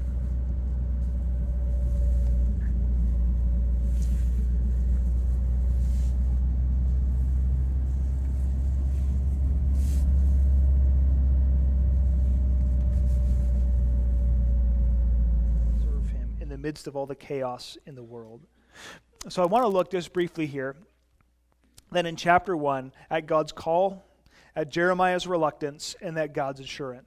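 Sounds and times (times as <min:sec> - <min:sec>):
car road and engine rumble: 0:00.0 - 0:16.6
faint steady whine: 0:00.0 - 0:16.8.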